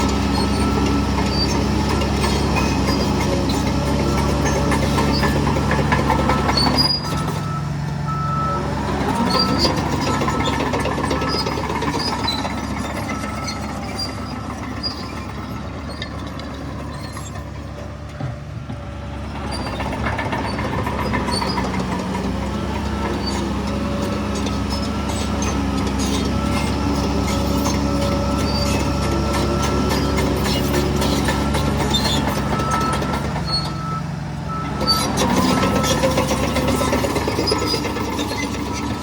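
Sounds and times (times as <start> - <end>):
heavy diesel machinery: 0.0 - 39.0
high metallic squeaks: 0.2 - 7.6, 9.2 - 17.7, 19.4 - 39.0
reversing alarm beeping: 3.9 - 15.9, 24.0 - 39.0.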